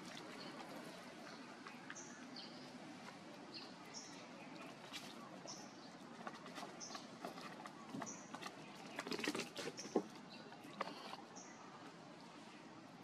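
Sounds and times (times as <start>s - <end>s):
faint outdoor ambience: 0.0s - 13.0s.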